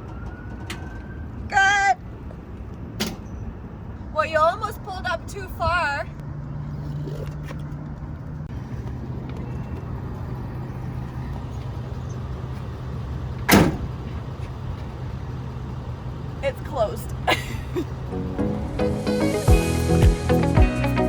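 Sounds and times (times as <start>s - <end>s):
truck engine idling: 8.0s - 21.0s
loud sharp clunk: 13.5s - 13.9s.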